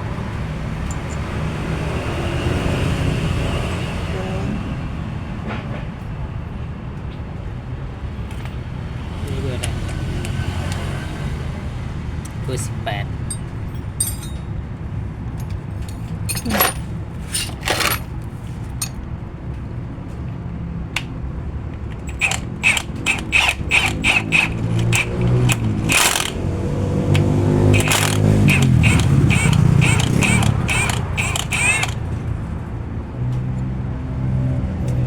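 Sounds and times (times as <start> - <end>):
metal tools clinking on steel: 0.8 - 1.2, 12.6 - 14.7, 15.3 - 19.0, 27.7 - 32.0.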